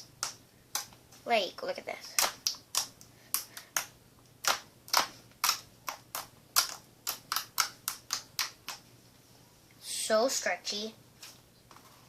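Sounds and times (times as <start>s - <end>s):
slime clicking and popping: 2.2s - 8.8s.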